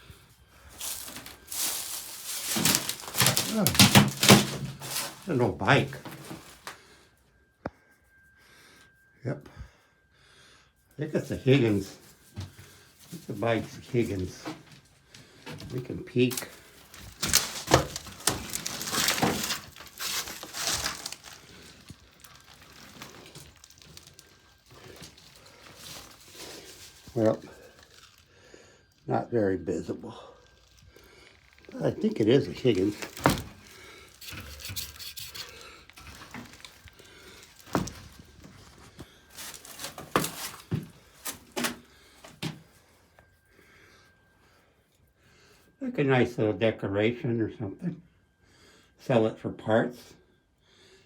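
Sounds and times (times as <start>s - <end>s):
junk rustling and clattering: 0.7s - 6.8s, 11.7s - 28.2s, 30.6s - 43.1s
wooden objects knocking together: 1.1s - 5.2s, 15.6s - 22.0s
objects rubbing and scraping: 31.5s - 41.8s.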